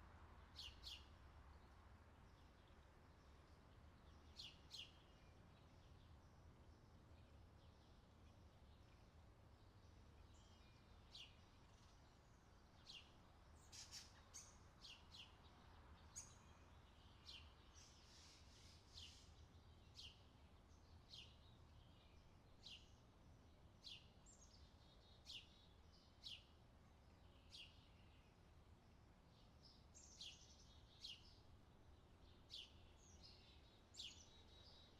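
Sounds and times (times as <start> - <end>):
faint bird chirps: 8.6 - 23.0, 29.3 - 34.9.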